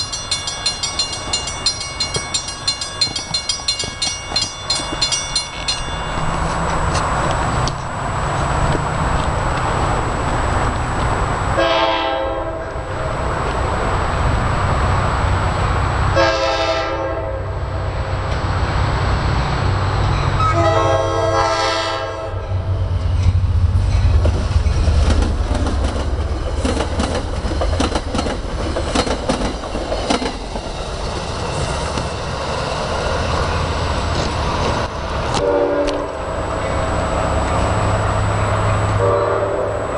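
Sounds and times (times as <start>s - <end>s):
locomotive horn blasts: 11.6s - 12.8s, 16.2s - 17.6s, 20.4s - 22.5s, 35.3s - 36.2s, 38.9s - 39.9s
locomotive engine rumble: 17.4s - 39.9s
wheels clattering over rail joints: 23.2s - 32.4s.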